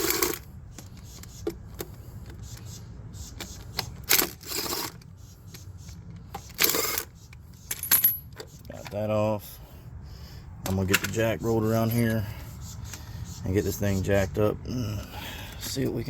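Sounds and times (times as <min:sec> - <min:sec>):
impact wrench spinning: 0:03.3 - 0:05.0.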